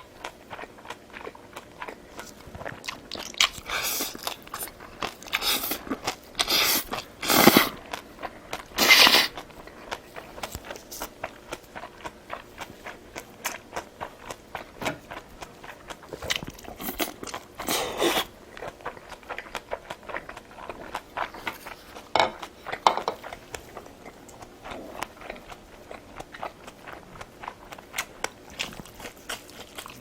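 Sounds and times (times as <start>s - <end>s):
chewing and biting food: 0.0s - 30.0s.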